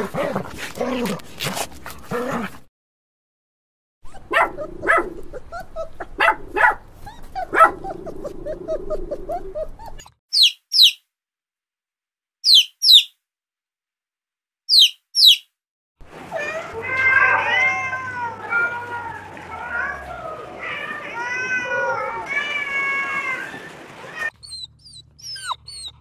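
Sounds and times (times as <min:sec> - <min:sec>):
dogs barking and yipping: 0:04.0 - 0:10.1, 0:16.2 - 0:26.0.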